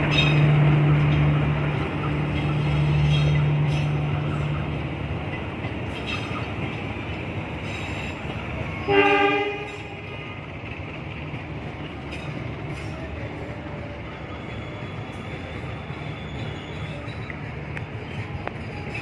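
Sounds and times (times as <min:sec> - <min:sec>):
train rumbling past: 0:00.0 - 0:19.0
train horn blast: 0:08.8 - 0:10.0.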